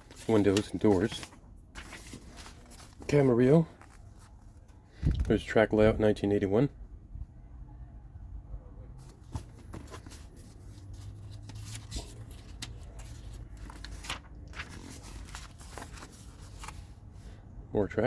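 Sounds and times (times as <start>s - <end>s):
paper pages rustling: 0.0s - 5.4s, 9.0s - 17.3s
low steady hum: 6.7s - 17.8s.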